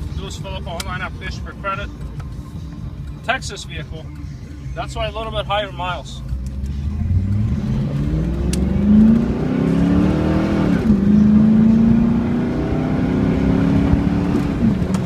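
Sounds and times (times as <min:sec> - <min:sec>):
car engine accelerating: 0:06.2 - 0:15.0.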